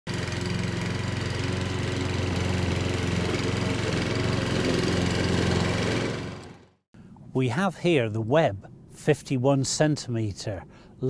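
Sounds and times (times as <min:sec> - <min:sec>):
lawn mower engine running: 0:00.1 - 0:06.8.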